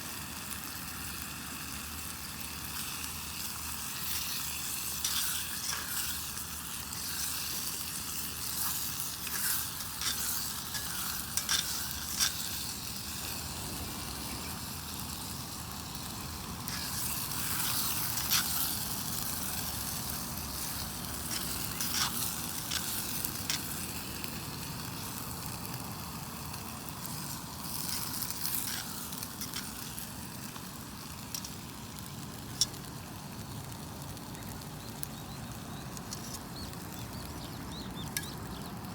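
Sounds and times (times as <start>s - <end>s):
food sizzling in a pan: 0.0s - 38.9s
stirring clicks and scrapes: 2.6s - 25.8s, 26.9s - 33.0s, 35.0s - 38.8s.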